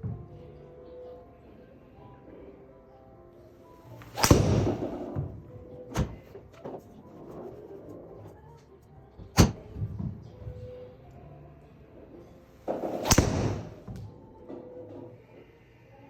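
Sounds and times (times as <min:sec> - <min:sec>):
golf club striking ball: 0:04.0 - 0:05.3, 0:12.7 - 0:14.1.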